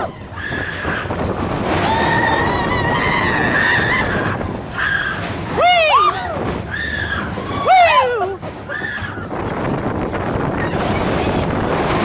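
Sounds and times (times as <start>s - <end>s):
roller coaster train rumble: 0.0s - 12.0s
riders screaming: 1.7s - 9.3s.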